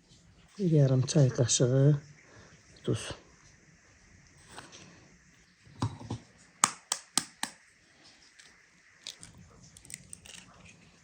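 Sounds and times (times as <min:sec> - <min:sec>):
kitchenware dull knocks: 0:05.8 - 0:07.5
kitchenware sharp taps: 0:05.8 - 0:07.6.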